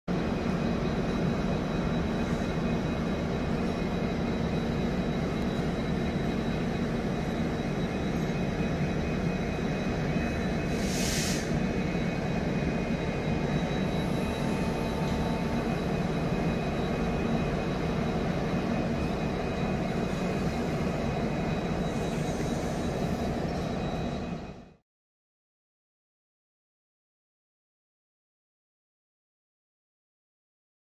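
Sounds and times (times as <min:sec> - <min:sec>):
thin high whine: 0:00.1 - 0:24.8
train rumble and hum: 0:00.1 - 0:24.8
brief hiss: 0:10.8 - 0:11.6.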